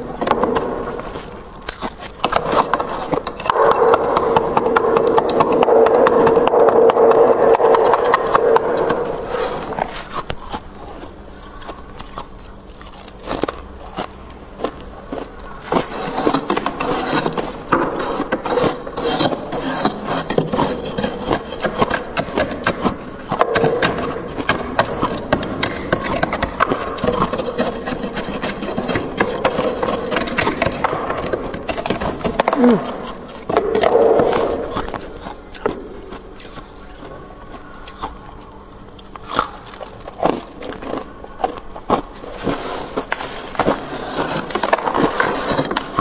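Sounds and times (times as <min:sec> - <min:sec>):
freezer frost being scraped: 0:00.0 - 0:11.2, 0:15.5 - 0:35.2, 0:41.5 - 0:46.0.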